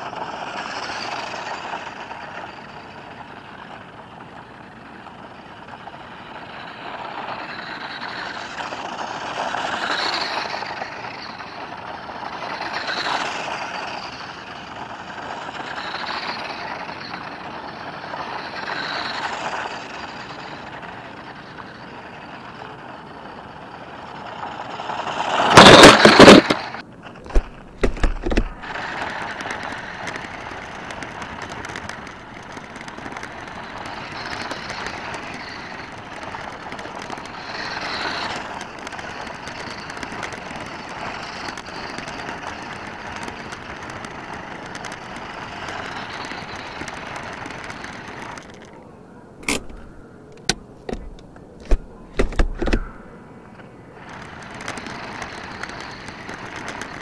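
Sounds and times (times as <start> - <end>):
toy truck clattering: 0.0 - 48.8, 49.4 - 57.0
toy truck running over gritty ground: 0.0 - 57.0
sharp clicks and knocks: 27.2 - 48.8, 49.4 - 53.2, 54.0 - 57.0.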